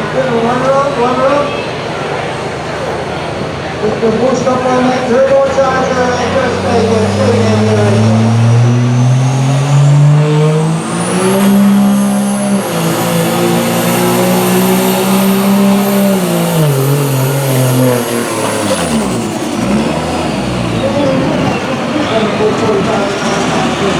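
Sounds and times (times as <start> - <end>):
diesel truck engine at full throttle: 0.0 - 23.9
high turbo whistle: 4.8 - 22.5.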